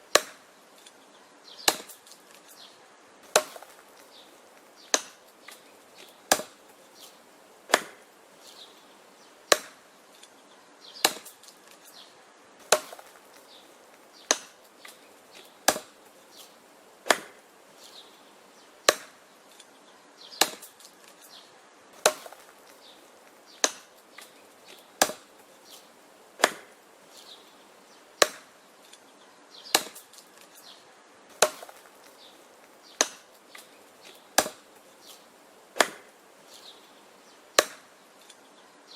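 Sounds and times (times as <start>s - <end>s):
wood chopping strikes: 0.1s - 1.0s, 1.6s - 2.6s, 3.2s - 8.7s, 9.5s - 10.4s, 11.0s - 12.0s, 12.6s - 18.1s, 18.8s - 19.7s, 20.3s - 21.4s, 22.0s - 27.3s, 28.2s - 29.0s, 29.7s - 36.8s, 37.6s - 38.4s.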